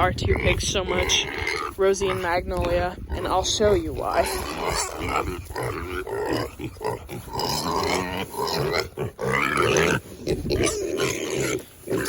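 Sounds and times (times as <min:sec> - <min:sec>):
pigs grunting and squealing: 0:00.0 - 0:12.0.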